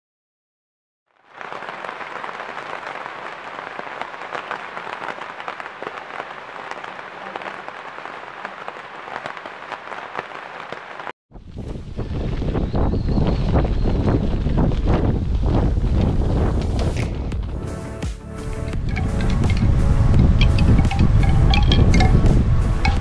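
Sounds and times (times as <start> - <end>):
rain falling on a puddle: 1.1 - 11.1, 18.7 - 23.0
wind buffeting microphone: 11.3 - 17.6, 18.4 - 23.0.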